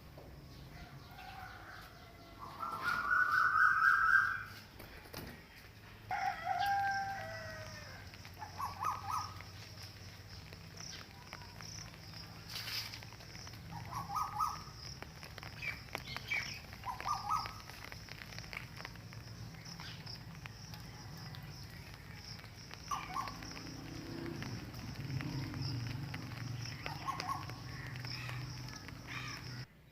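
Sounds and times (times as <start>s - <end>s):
animal calls: 8.3s - 9.4s, 13.7s - 14.8s, 16.7s - 17.7s, 22.8s - 29.6s.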